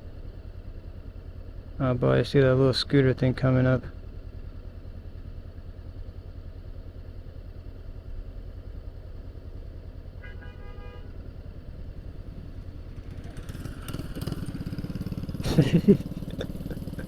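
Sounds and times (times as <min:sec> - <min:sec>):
motorcycle engine idling: 0:00.0 - 0:17.0
vehicle horn toot: 0:10.2 - 0:11.2.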